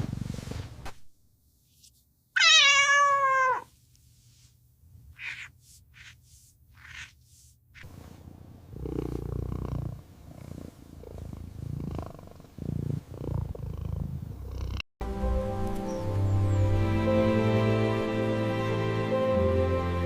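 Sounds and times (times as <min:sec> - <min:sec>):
cat purring: 0:00.0 - 0:00.8, 0:07.8 - 0:14.8.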